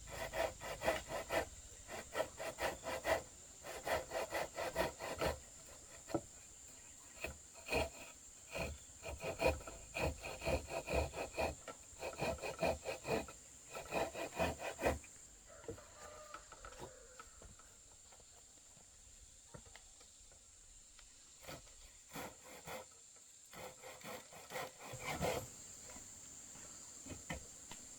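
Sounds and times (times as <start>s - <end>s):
hand tool rasping wood: 0.0s - 15.1s, 21.4s - 26.1s.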